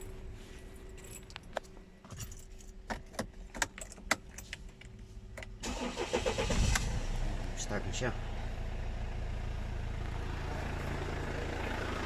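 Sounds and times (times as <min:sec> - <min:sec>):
keys jingling and clicking: 0:00.8 - 0:04.9
van engine cranking: 0:05.5 - 0:07.2.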